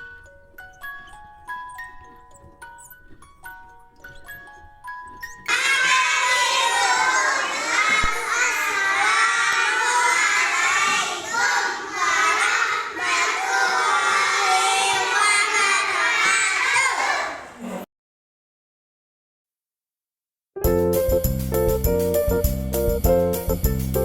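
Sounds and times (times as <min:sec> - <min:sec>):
children shouting and cheering: 0:05.5 - 0:17.6.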